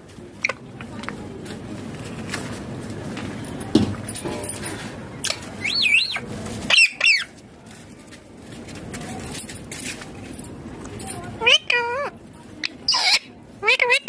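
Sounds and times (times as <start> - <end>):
parakeet shrill calls: 5.6 - 7.3, 12.9 - 14.0.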